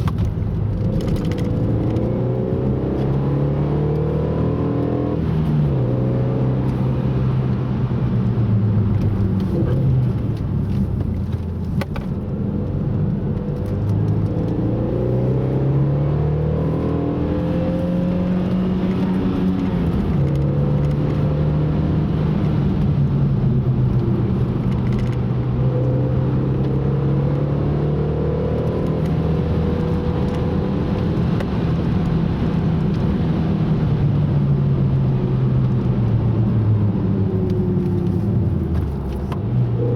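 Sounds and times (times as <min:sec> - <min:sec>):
car engine revving: 0:00.0 - 0:39.9
road noise: 0:00.0 - 0:39.9.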